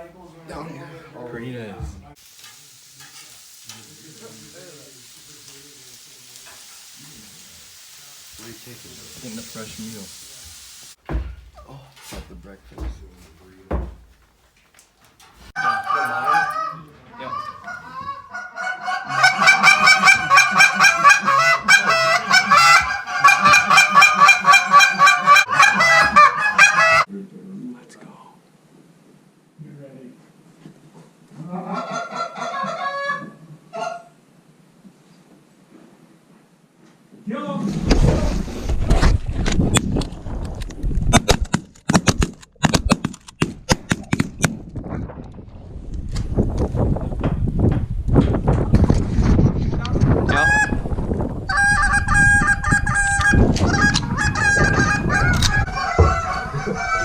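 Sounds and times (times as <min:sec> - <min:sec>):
geese honking: 0:15.6 - 0:27.1, 0:51.5 - 0:57.0.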